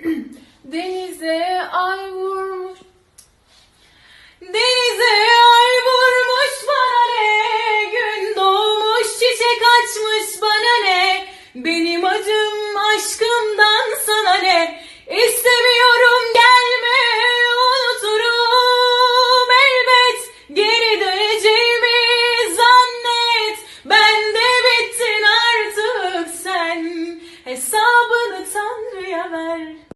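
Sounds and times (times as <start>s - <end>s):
woman singing unaccompanied: 0.0s - 3.0s, 4.4s - 29.9s
singer breathing: 3.4s - 4.4s, 11.2s - 11.6s, 14.8s - 15.1s, 23.6s - 23.9s, 27.2s - 27.5s.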